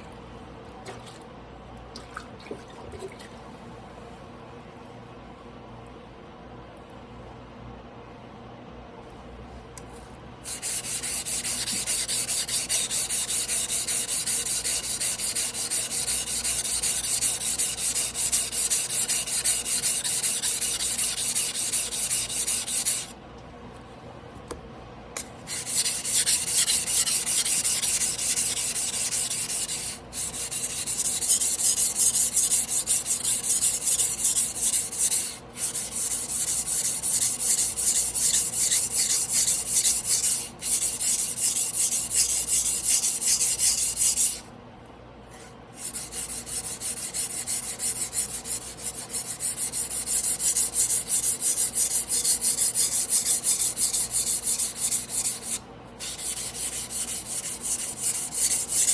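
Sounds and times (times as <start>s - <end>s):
knife scraping on whetstone: 10.5s - 23.1s, 25.2s - 44.4s, 45.8s - 58.9s.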